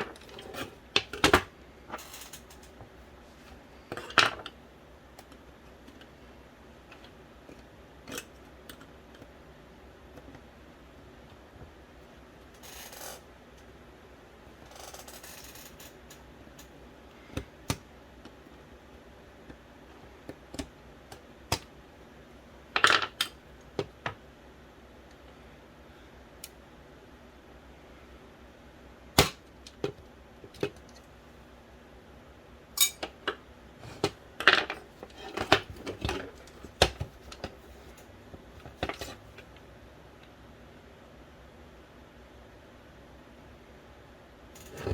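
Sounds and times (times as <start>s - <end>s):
clicks and clatter of small parts: 0.0s - 2.8s.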